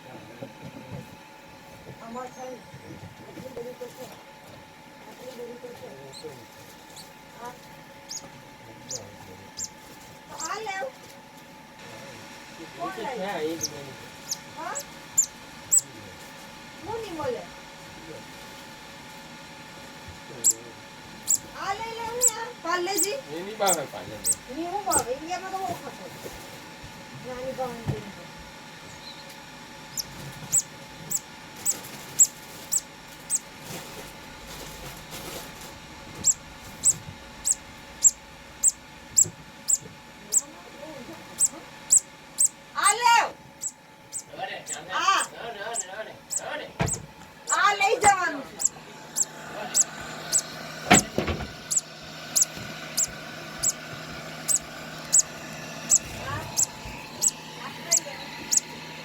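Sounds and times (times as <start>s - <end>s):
chick peeping: 8.1s - 10.7s, 13.6s - 15.9s, 21.2s - 25.1s, 29.9s - 33.5s, 36.1s - 40.6s, 41.3s - 58.8s.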